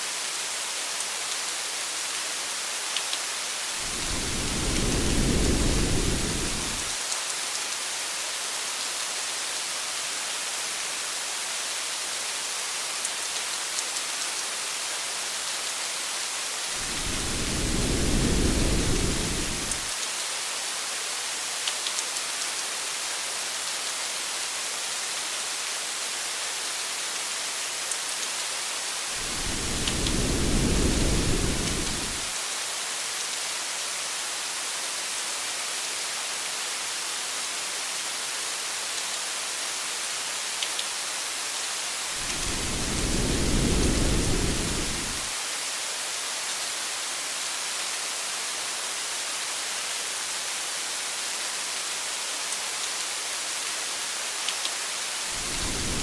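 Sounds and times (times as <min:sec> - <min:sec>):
rain hiss: 0:00.0 - 0:56.0
faint raindrop ticks: 0:02.9 - 0:07.8, 0:13.0 - 0:14.5, 0:21.6 - 0:22.7, 0:29.3 - 0:32.3, 0:40.6 - 0:40.9, 0:54.4 - 0:54.8
low thunder rumbles: 0:03.8 - 0:07.0, 0:16.8 - 0:19.9, 0:29.2 - 0:32.3, 0:42.2 - 0:45.3, 0:55.4 - 0:56.0.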